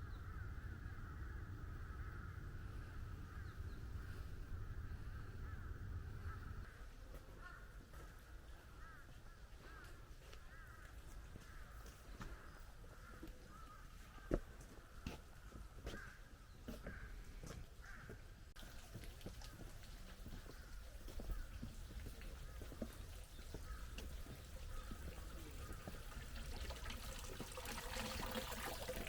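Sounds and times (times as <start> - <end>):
wind rumble on microphone: 0.0 - 6.8
birds calling: 0.0 - 27.2.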